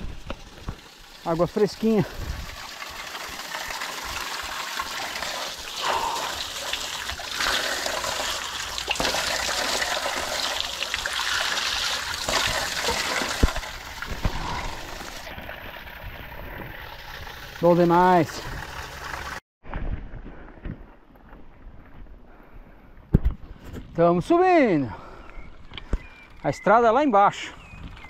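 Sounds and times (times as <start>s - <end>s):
water pouring and splashing: 0.0s - 19.4s.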